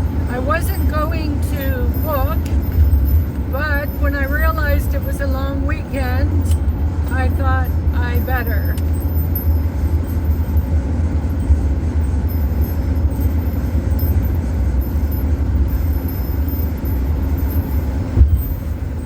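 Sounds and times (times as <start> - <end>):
engine and tyre rumble: 0.0 - 19.0
vehicle bump: 16.8 - 19.0.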